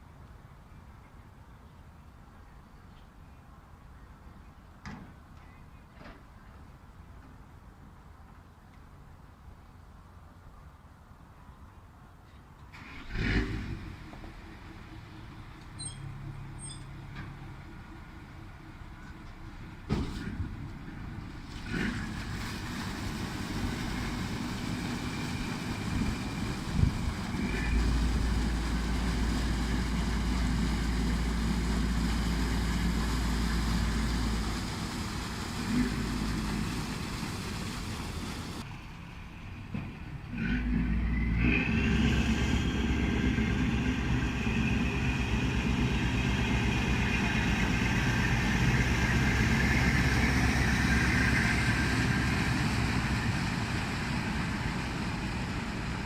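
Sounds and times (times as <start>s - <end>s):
ship diesel engine rumbling: 12.7s - 56.0s.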